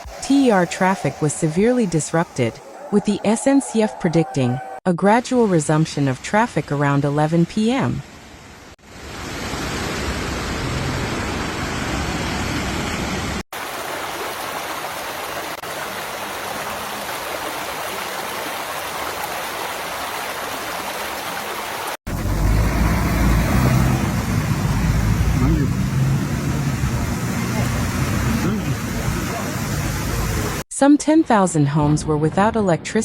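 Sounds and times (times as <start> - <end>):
floodwater rushing: 0.0 - 4.8, 13.6 - 30.6.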